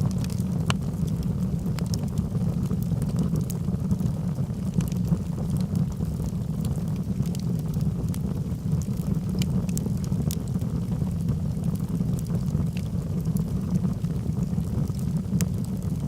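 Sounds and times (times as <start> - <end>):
log fire crackling: 0.0 - 16.0.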